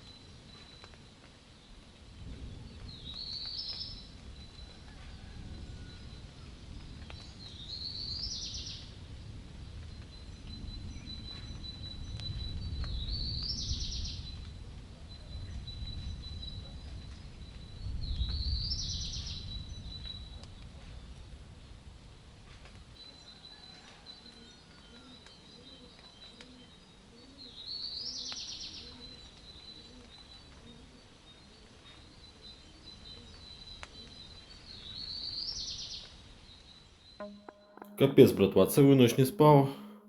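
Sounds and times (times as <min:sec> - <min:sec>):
faint high tone: 0:37.2 - 0:40.0.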